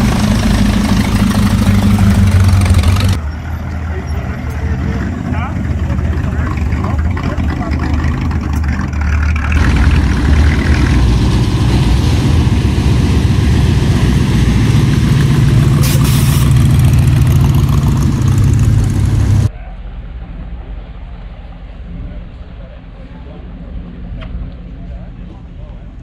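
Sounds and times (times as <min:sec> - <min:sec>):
car engine revving: 0:00.0 - 0:19.5.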